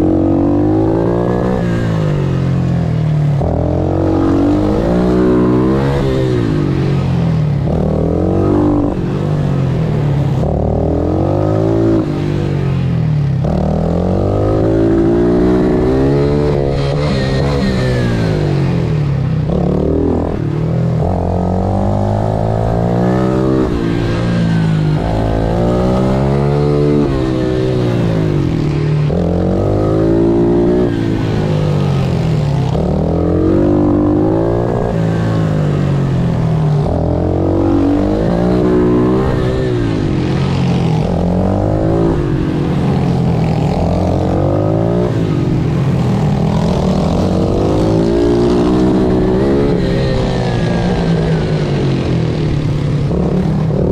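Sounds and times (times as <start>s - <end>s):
pit bike engine revving: 13.4s - 53.9s.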